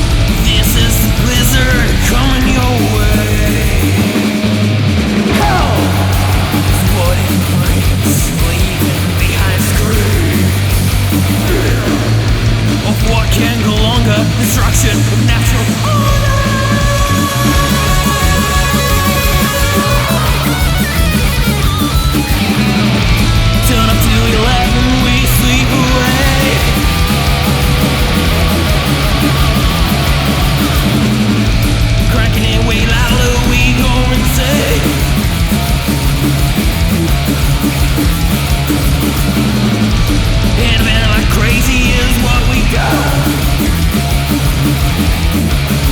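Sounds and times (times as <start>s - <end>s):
heavy metal band playing: 0.0s - 45.9s
person singing: 0.4s - 4.6s, 5.2s - 10.8s, 11.4s - 21.6s, 23.6s - 27.0s, 32.1s - 35.4s, 40.5s - 43.8s.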